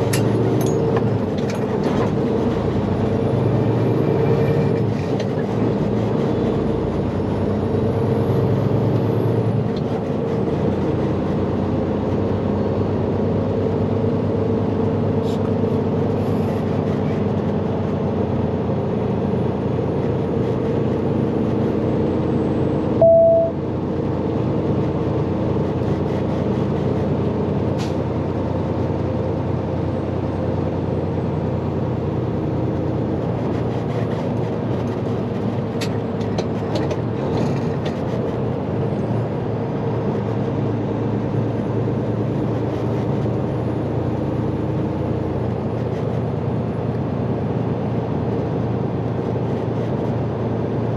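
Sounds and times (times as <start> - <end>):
short loud beep: 23.0 - 23.6.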